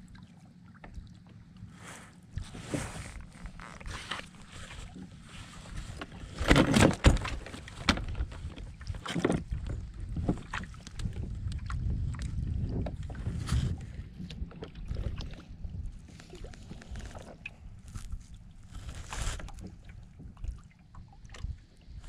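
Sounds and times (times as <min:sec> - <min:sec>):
knocks and rustles against hull: 0:00.0 - 0:22.0
low steady rumble: 0:00.0 - 0:22.0
clattering on kayak: 0:02.7 - 0:11.3.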